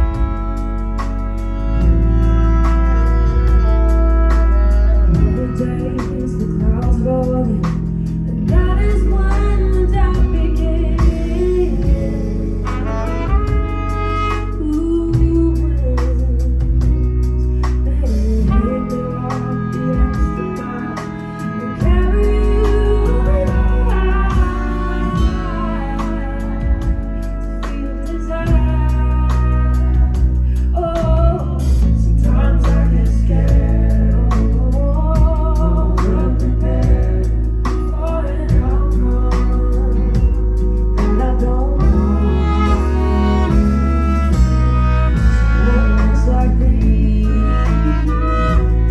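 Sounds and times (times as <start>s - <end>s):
bass: 0.0s - 48.9s
held chords: 0.0s - 48.9s
live band playing pop song: 0.0s - 48.9s
woman singing: 0.0s - 48.9s.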